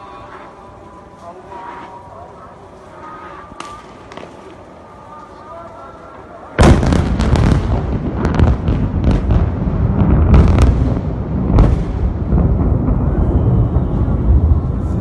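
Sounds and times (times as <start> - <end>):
thunder rumbling and crackling: 6.6 - 15.0.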